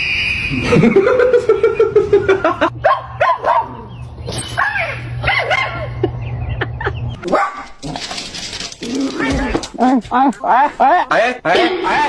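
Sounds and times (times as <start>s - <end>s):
steady low hum: 0.4s - 7.2s
dog yipping and barking: 2.8s - 3.8s, 7.2s - 7.8s.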